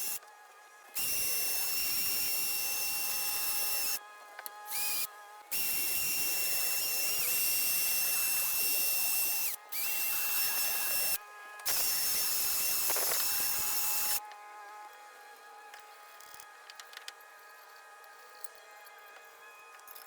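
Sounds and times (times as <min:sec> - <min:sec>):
power tool motor whining: 0:00.0 - 0:00.2, 0:01.0 - 0:15.9
faint background music: 0:00.0 - 0:20.0.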